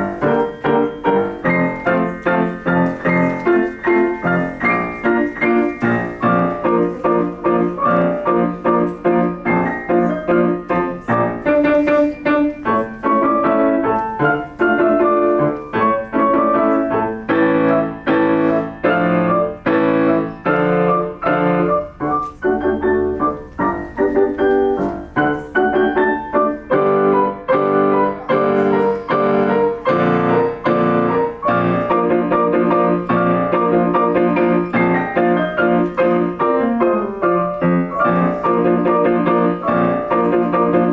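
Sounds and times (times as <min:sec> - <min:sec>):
solo piano piece: 0:00.0 - 0:40.9.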